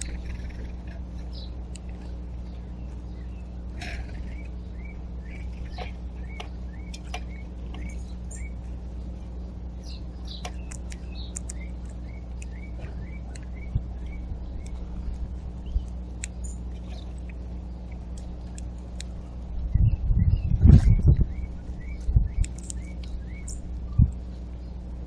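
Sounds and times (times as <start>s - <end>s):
birds chirping: 0.0s - 25.0s
low hum: 0.0s - 25.0s
sharp clicks: 10.3s - 12.6s, 22.0s - 24.2s.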